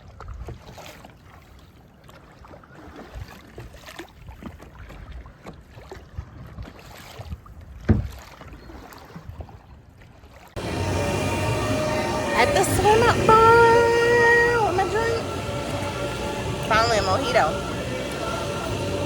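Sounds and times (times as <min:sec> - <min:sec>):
paddle splashing in water: 0:00.0 - 0:10.7.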